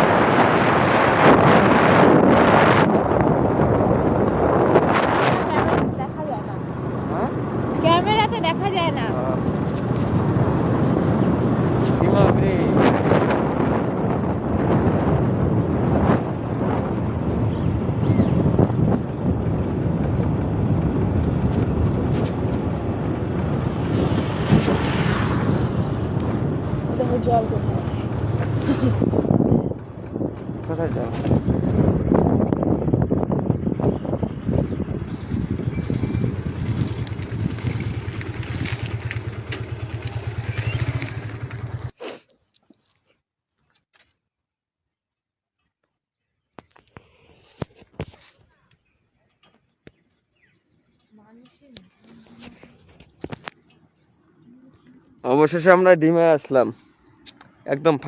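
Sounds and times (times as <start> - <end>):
wind rushing over microphone: 0.0 - 41.9
motorbike running: 0.0 - 42.0.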